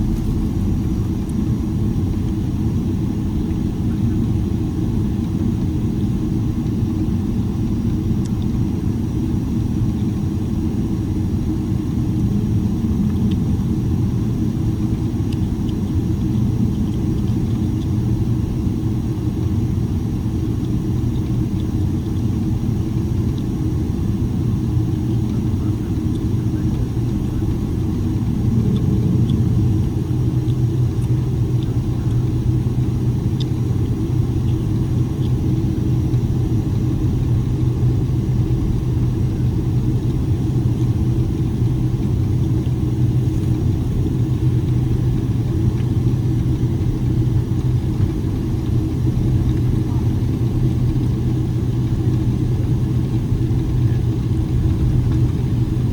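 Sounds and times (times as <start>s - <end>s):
airplane cabin engine hum: 0.0s - 55.9s.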